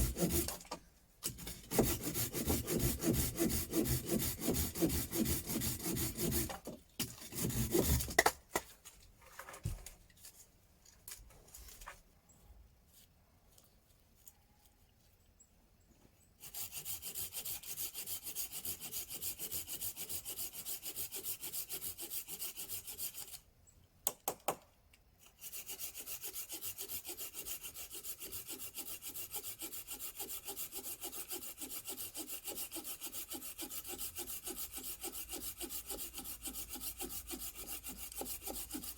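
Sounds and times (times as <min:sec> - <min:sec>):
hand saw cutting wood: 0:00.0 - 0:08.4, 0:16.4 - 0:23.4, 0:25.2 - 0:38.9.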